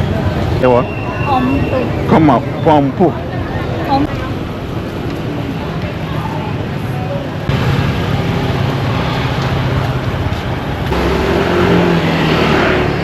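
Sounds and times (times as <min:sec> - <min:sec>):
street noise: 0:00.0 - 0:13.0
higher engine note: 0:07.5 - 0:13.0.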